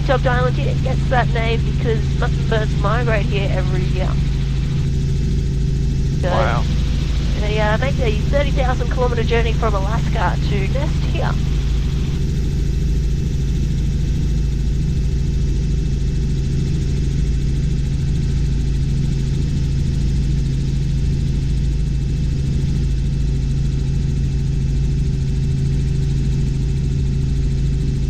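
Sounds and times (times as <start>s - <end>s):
helicopter engine and rotors droning: 0.0s - 28.0s.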